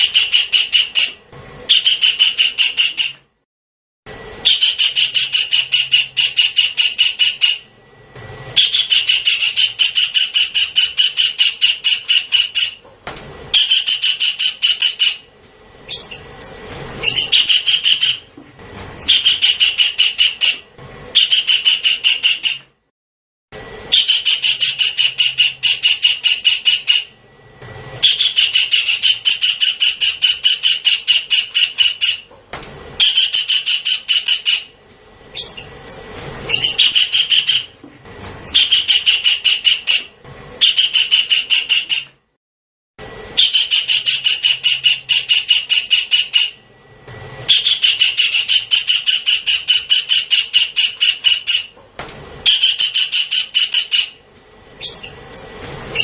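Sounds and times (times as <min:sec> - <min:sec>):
kingfisher rattling call: 0:15.9 - 0:18.3, 0:28.0 - 0:32.3, 0:35.4 - 0:37.7.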